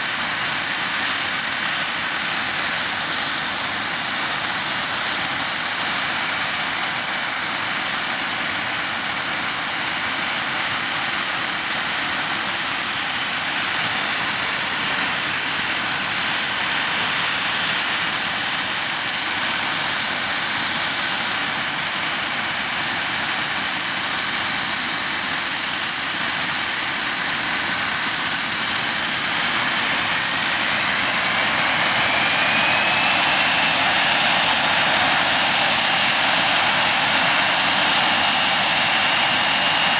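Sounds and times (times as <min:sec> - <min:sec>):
jet engines running: 0:00.0 - 0:39.9
rising engine whine: 0:27.8 - 0:39.9.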